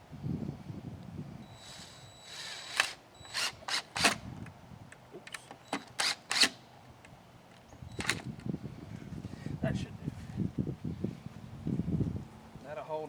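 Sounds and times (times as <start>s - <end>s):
faint tool whine: 1.3s - 4.5s
sharp mechanical bursts: 1.6s - 4.4s, 5.4s - 6.6s, 8.0s - 8.3s.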